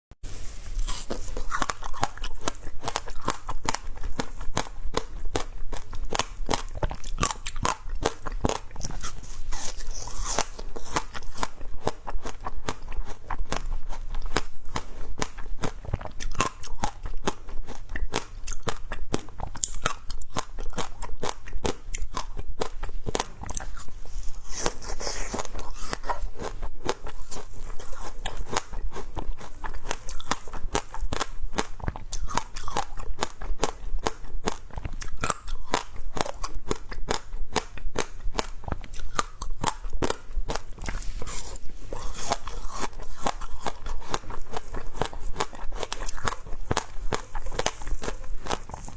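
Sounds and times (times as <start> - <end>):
crunching and chewing shaved ice: 0.7 - 48.9.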